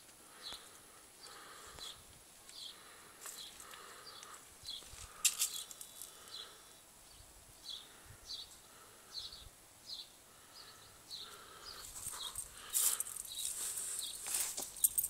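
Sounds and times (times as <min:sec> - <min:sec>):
background hiss: 0:00.0 - 0:15.0
small bird chirping: 0:03.4 - 0:15.0
rustling noise: 0:11.8 - 0:15.0.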